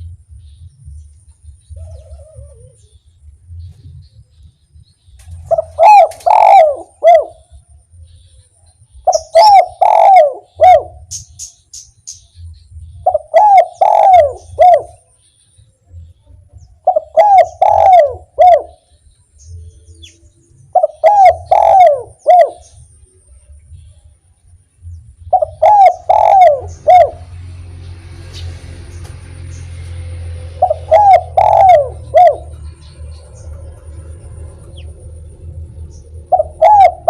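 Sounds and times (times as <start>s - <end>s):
small bird chirping: 0.0s - 24.0s, 24.8s - 37.0s
dove cooing: 1.5s - 3.8s, 5.2s - 7.8s, 9.0s - 11.2s, 12.9s - 15.0s, 16.8s - 18.9s, 19.9s - 22.8s, 25.2s - 27.5s, 30.0s - 37.0s.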